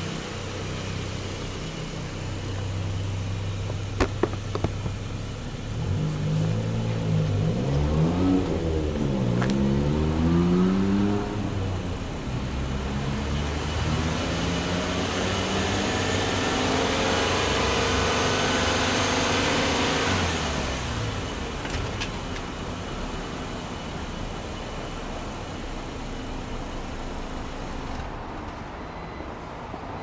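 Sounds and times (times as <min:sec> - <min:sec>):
car engine revving: 0:00.0 - 0:21.6.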